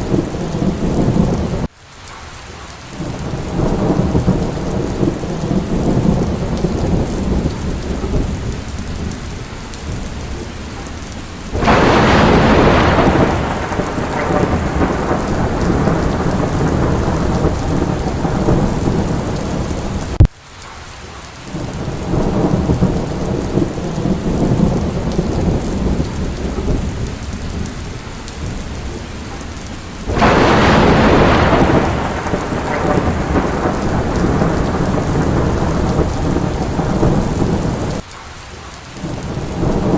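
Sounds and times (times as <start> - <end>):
steady rain: 0.0 - 39.9
thunder crash: 11.5 - 20.3, 30.1 - 38.0.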